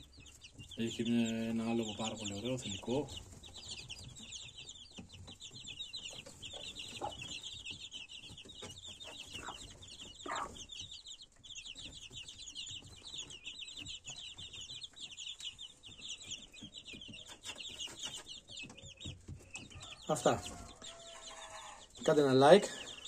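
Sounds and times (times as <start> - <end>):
chicks peeping: 0.0 - 23.0
hen clucking: 0.0 - 23.0.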